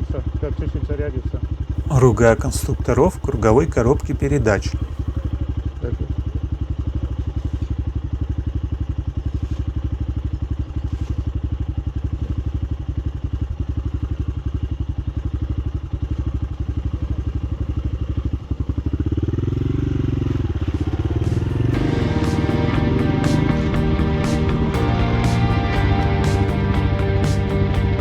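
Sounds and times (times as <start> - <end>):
motorcycle engine idling: 15.4 - 28.0.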